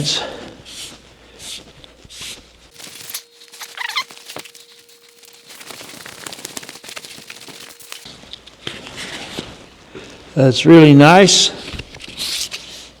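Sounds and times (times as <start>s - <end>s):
cloth rubbing on metal: 0.7s - 9.8s
brief squeak: 3.6s - 4.2s.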